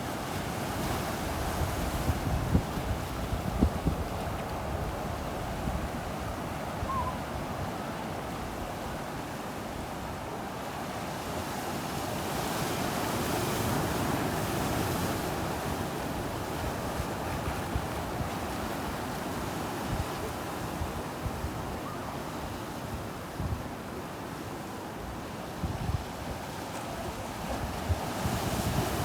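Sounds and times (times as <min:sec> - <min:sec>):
ocean surf on beach: 0:00.0 - 0:29.0
wind buffeting microphone: 0:01.2 - 0:07.3.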